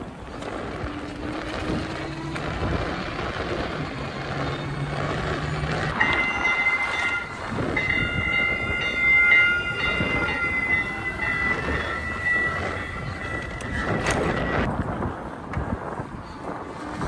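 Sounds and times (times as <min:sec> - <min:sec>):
train running rumble: 0:00.0 - 0:17.0
wind noise: 0:00.0 - 0:17.0.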